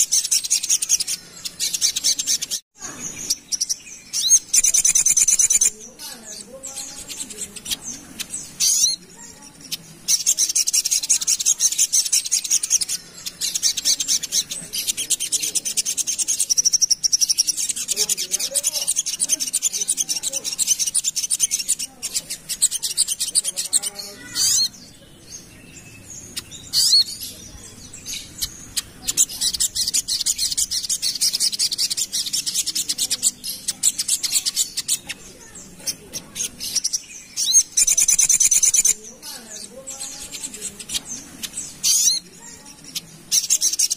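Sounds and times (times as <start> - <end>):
bird chattering song: 0.0 - 43.9.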